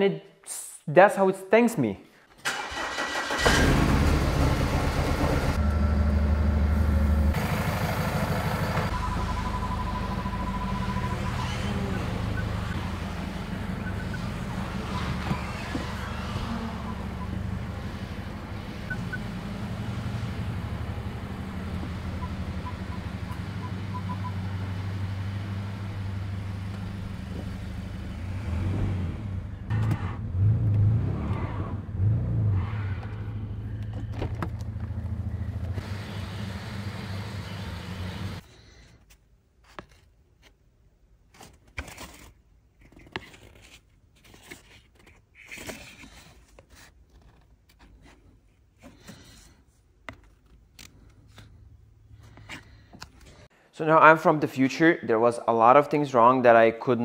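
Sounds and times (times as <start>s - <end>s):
car engine running and surging: 3.4s - 38.4s.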